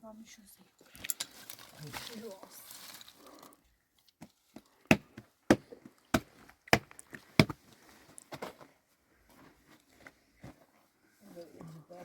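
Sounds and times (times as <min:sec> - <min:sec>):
chopping into wood: 0:04.9 - 0:07.6.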